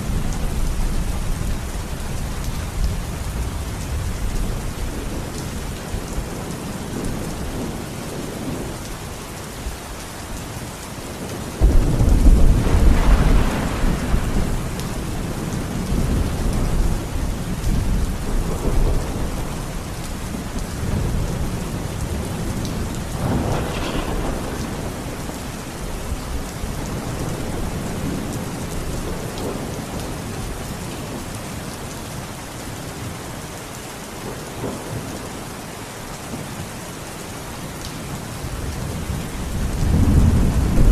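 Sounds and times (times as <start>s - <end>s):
steady rain: 0.0s - 40.9s
rolling thunder: 11.2s - 30.2s, 38.6s - 40.9s.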